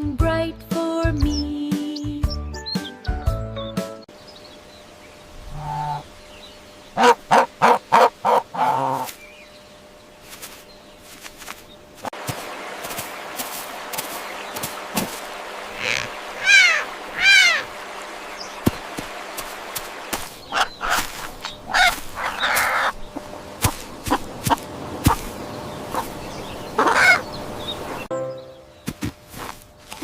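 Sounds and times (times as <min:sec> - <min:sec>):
poultry calling: 0:05.4 - 0:06.2, 0:06.9 - 0:09.2, 0:13.9 - 0:25.3, 0:25.9 - 0:27.9.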